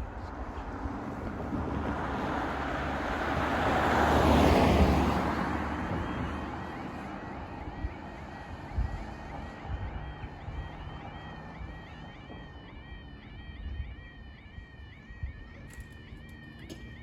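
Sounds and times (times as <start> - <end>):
car driving past: 0.7 - 6.6.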